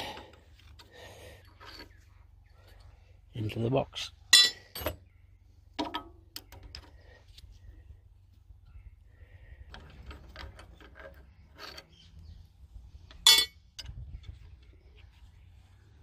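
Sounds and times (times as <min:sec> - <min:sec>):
metal engine parts clinking: 0:00.0 - 0:02.8, 0:04.3 - 0:05.1, 0:09.7 - 0:12.0, 0:13.0 - 0:14.3.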